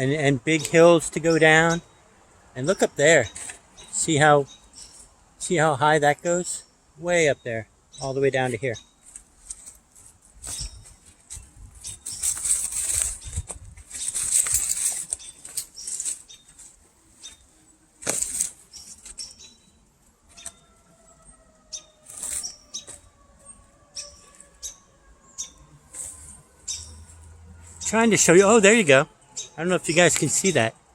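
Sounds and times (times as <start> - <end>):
footsteps rustling on dirt trail: 9.0 - 20.6, 21.8 - 24.8, 25.4 - 28.8.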